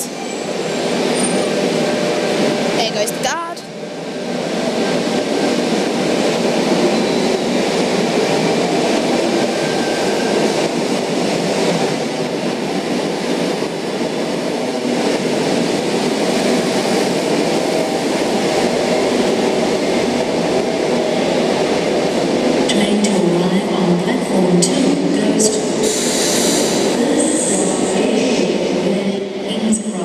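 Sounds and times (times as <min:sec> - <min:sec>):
electric train pulling out: 0:25.4 - 0:28.3.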